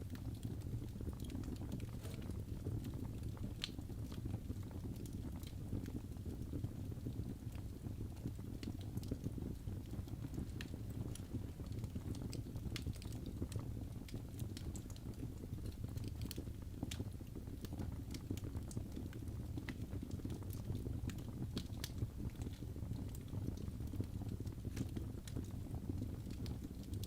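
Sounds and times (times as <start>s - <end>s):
fire crackling and popping: 0.0s - 27.0s
low rumble of flames: 0.0s - 27.0s.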